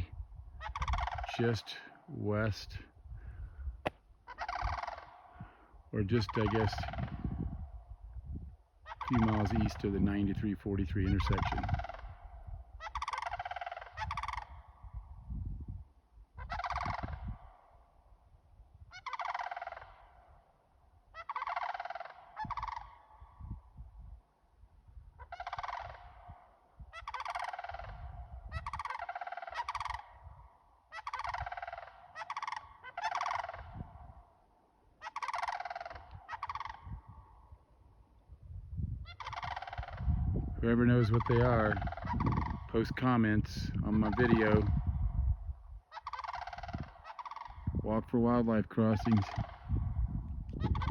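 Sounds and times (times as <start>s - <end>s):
birds giving harsh rolling calls: 30.9s - 33.8s, 35.0s - 37.0s.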